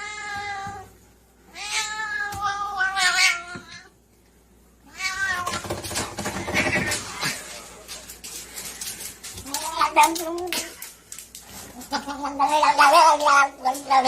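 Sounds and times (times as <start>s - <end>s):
cat meowing: 4.9s - 5.8s.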